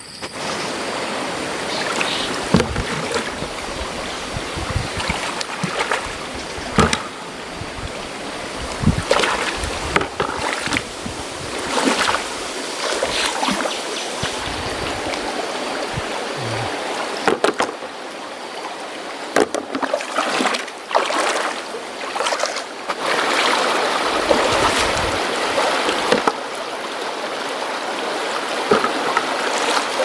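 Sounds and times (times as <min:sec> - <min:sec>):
river water sloshing: 0:00.4 - 0:30.0
sharp splashes or knocks: 0:02.4 - 0:03.5, 0:04.6 - 0:07.2, 0:28.7 - 0:29.9.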